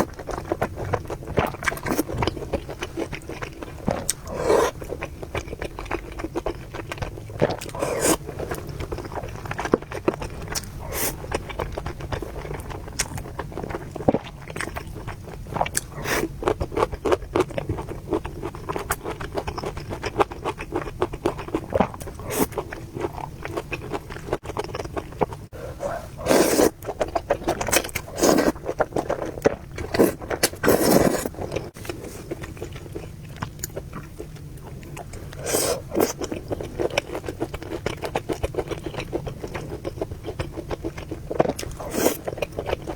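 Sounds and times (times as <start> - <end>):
chewing noodles: 0.0 - 42.9
slurping noodles: 3.7 - 5.0, 7.4 - 8.8, 10.8 - 11.4, 25.5 - 32.6, 35.4 - 36.2, 41.6 - 42.4.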